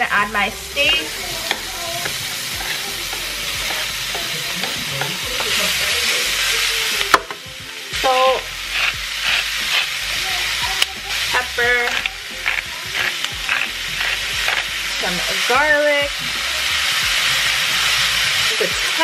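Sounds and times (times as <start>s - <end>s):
steak sizzling in a wok: 0.0s - 19.0s
wooden spatula stirring: 0.7s - 7.2s, 8.6s - 15.1s.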